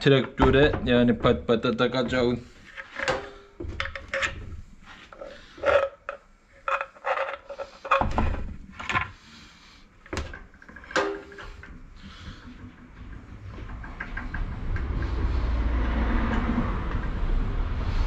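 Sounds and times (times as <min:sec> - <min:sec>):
metal clinks and knocks: 0:00.2 - 0:09.2.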